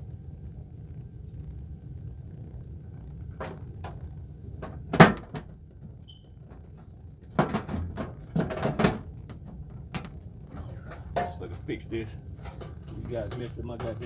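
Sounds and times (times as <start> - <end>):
metal panel rattling: 3.3 - 14.0
knocks on metal panel: 3.4 - 4.0, 4.6 - 5.9, 7.2 - 11.7.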